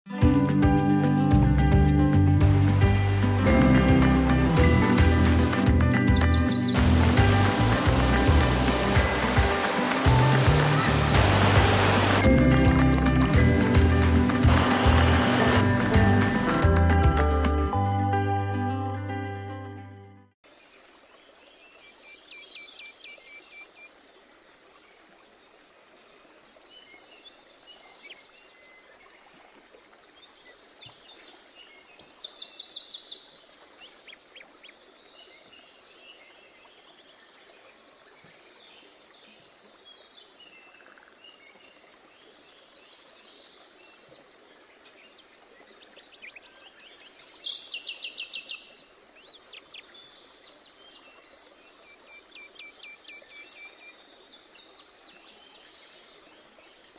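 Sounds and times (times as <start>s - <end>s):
mountain stream rushing: 2.4s - 17.8s
songbirds singing and chirping: 2.5s - 16.9s.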